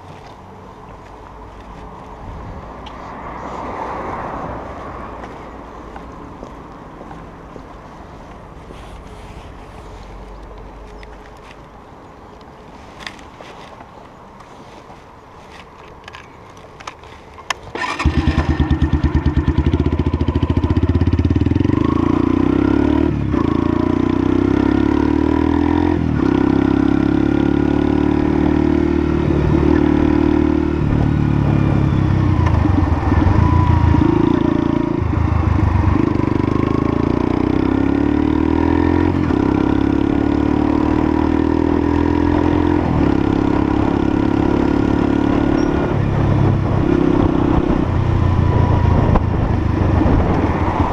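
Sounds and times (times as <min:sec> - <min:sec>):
motorcycle engine running: 0:17.8 - 0:24.8.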